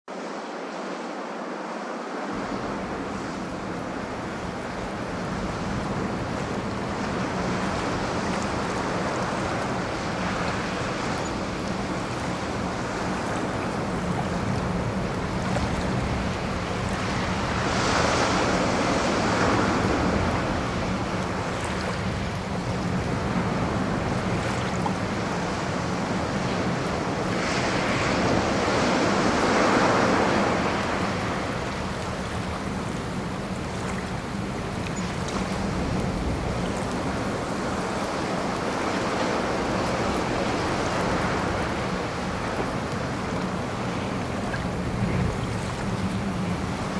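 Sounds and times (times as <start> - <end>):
ocean waves washing in: 0.1 - 46.9.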